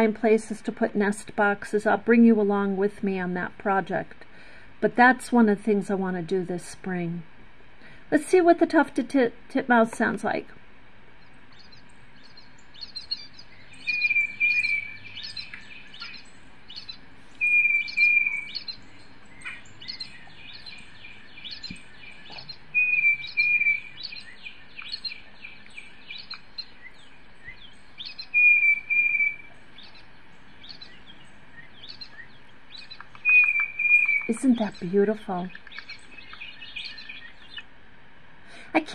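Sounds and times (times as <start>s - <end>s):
whistled bird song from laptop speaker: 13.8s - 16.2s, 17.4s - 18.7s, 21.5s - 25.2s, 28.0s - 29.5s, 31.6s - 34.4s
high bird chips and twitters: 19.4s - 26.7s, 31.8s - 37.6s.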